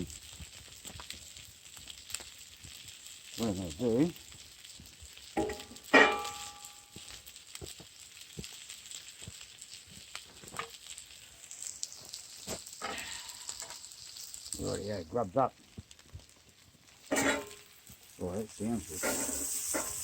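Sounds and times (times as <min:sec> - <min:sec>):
food sizzling over campfire: 0:00.0 - 0:20.0
utensil clattering on cookware: 0:17.1 - 0:17.6, 0:19.0 - 0:20.0.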